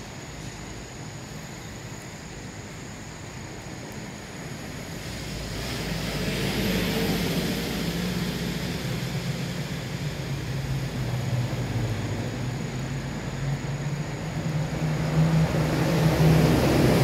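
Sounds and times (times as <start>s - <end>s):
passing vehicle engine hum: 4.6s - 17.0s.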